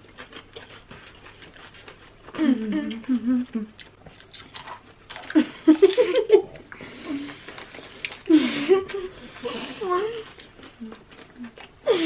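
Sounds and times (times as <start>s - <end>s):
chewing raw cucumber: 0.0s - 5.7s, 10.0s - 11.9s.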